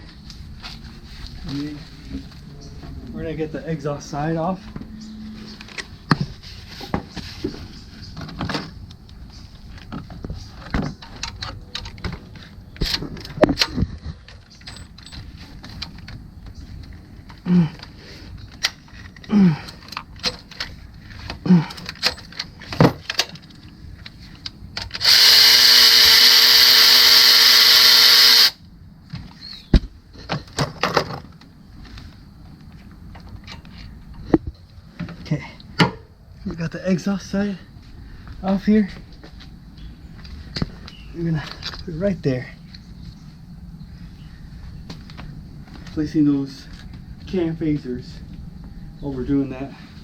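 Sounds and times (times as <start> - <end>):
power tool running: 24.9 - 28.6.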